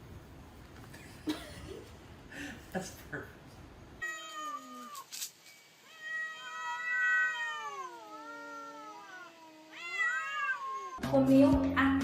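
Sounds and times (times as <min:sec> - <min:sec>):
cat meowing: 0:04.0 - 0:05.1, 0:05.8 - 0:11.0
cat yowling: 0:04.0 - 0:05.1, 0:05.8 - 0:11.0.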